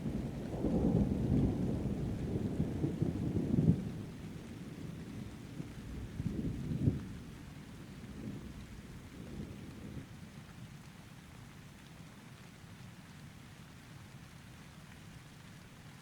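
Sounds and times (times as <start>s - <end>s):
steady rain: 0.0s - 16.0s
rolling thunder: 0.1s - 5.0s.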